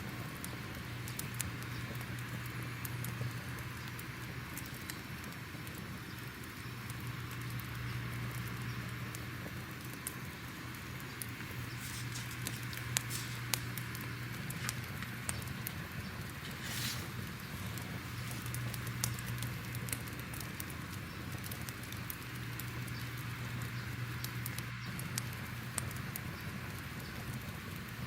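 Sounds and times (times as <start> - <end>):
crackling fire: 0.0 - 28.0
fire pops and snaps: 0.1 - 28.0.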